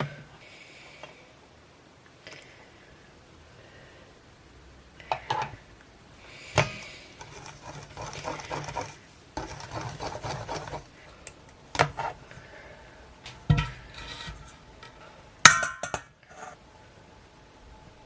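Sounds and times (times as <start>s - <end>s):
scraping or stirring in a bowl: 6.6s - 11.0s, 11.8s - 12.2s, 13.4s - 15.2s, 16.2s - 16.6s.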